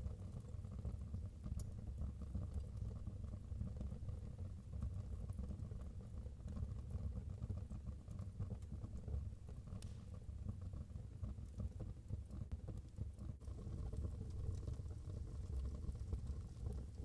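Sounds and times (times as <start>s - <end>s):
fire crackling and popping: 7.7s - 17.0s
wood fire rumbling: 11.4s - 17.0s.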